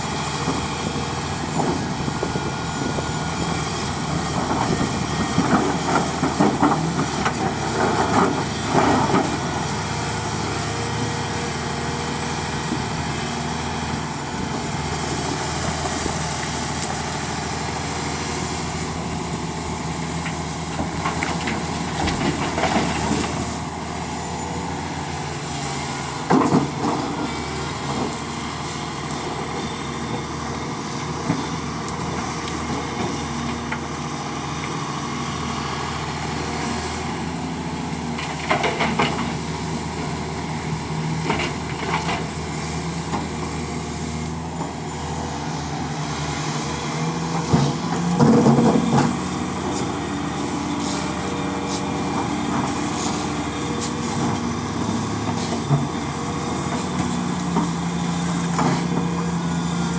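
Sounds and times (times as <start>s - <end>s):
diesel machinery running: 0.0s - 59.9s.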